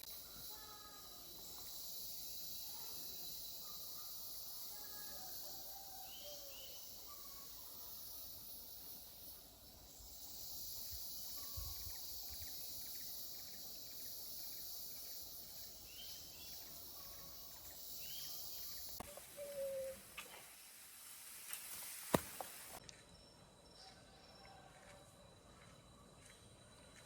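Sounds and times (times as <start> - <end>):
high-pitched insect drone: 0.0 - 19.9.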